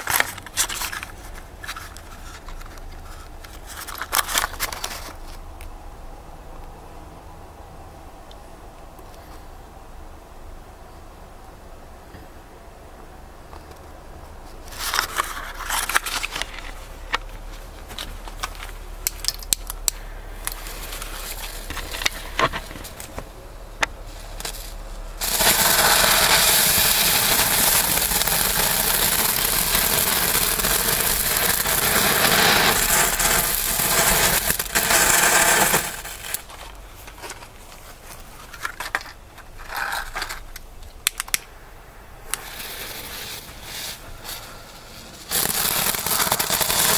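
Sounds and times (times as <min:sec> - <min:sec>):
firework crackling and hissing: 0:14.4 - 0:40.6, 0:42.2 - 0:46.9.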